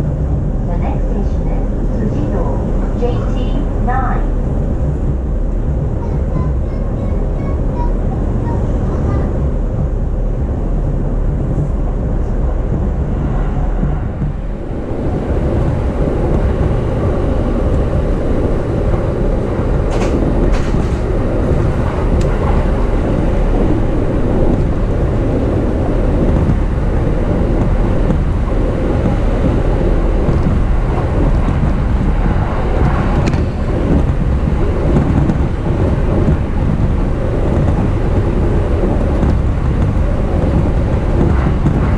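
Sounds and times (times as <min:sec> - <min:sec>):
electric train rumbling on rails: 0:00.0 - 0:41.9.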